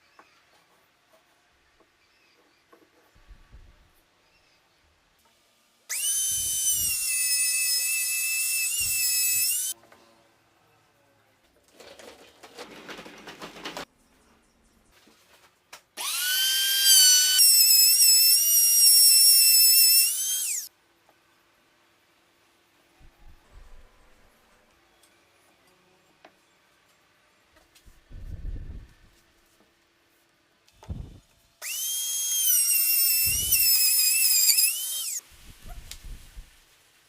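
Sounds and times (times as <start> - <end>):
power tool motor whining: 5.9 - 9.8, 16.0 - 20.7, 31.6 - 35.2.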